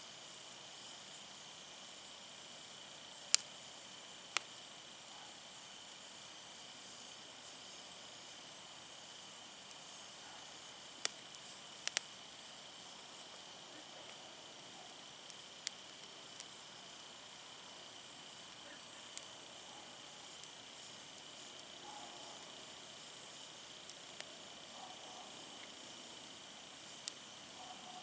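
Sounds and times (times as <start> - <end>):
campfire hiss: 0.0 - 28.0
firewood crackling pops: 3.1 - 3.6, 4.3 - 4.6, 9.5 - 14.2, 14.9 - 27.6.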